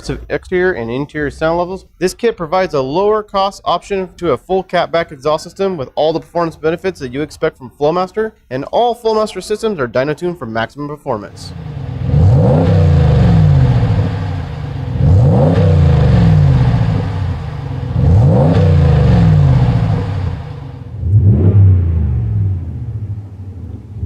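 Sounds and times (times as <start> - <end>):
truck exhaust revving: 11.3 - 24.0.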